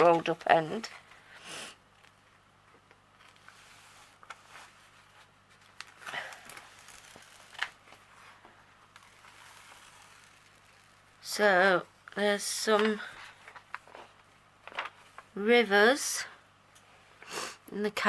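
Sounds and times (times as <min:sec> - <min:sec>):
canvas sheet rustling and crinkling: 0:03.4 - 0:11.2
sharp crackles: 0:05.6 - 0:07.9, 0:08.9 - 0:11.3.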